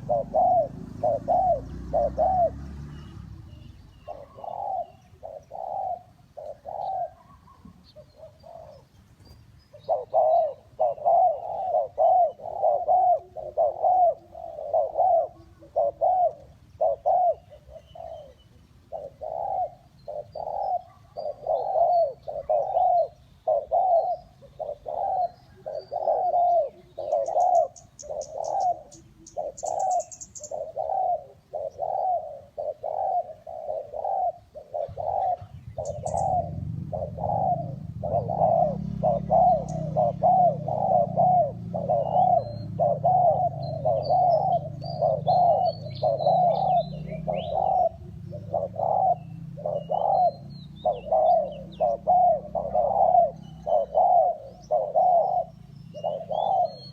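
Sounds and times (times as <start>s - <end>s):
dove cooing: 0.0s - 56.9s
small birds chirping: 0.0s - 56.9s
low steady rumble: 35.0s - 52.8s.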